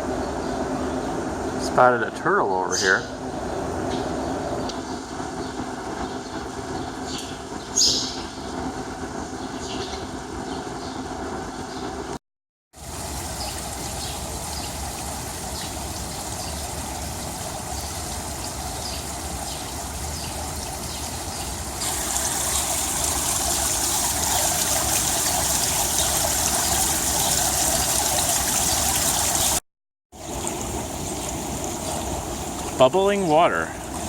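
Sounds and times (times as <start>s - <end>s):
water running and trickling: 12.8s - 29.6s, 30.2s - 34.0s.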